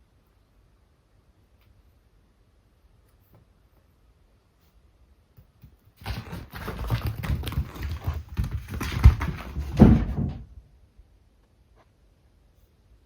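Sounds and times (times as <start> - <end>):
cats scrambling on floor: 5.6 - 10.6.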